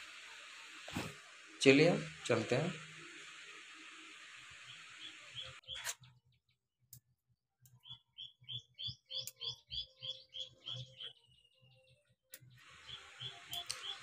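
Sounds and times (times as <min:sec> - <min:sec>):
steady hiss: 0:00.0 - 0:05.6, 0:12.6 - 0:14.0
bird chirping: 0:04.6 - 0:06.6, 0:07.7 - 0:14.0
click: 0:13.5 - 0:13.8.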